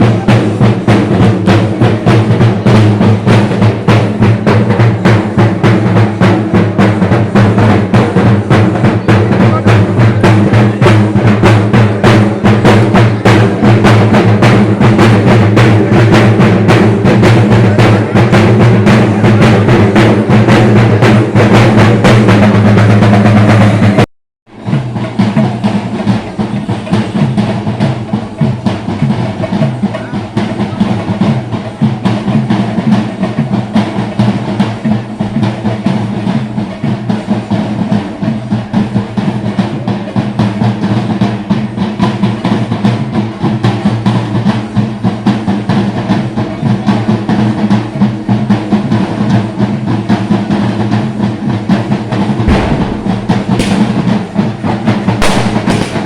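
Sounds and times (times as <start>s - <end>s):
drums beaten in a fast roll: 0.0s - 56.0s.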